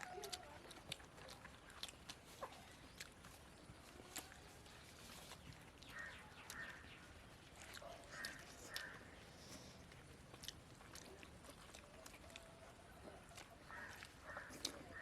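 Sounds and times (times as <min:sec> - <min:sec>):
faint bird calls: 0:05.8 - 0:07.2, 0:07.8 - 0:09.8, 0:13.3 - 0:15.0.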